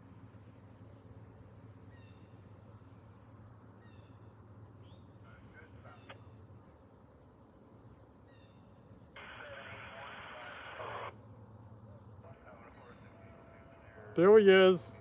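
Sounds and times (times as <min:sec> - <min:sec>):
insects droning: 0:00.0 - 0:15.0
freight train rumble: 0:11.8 - 0:15.0.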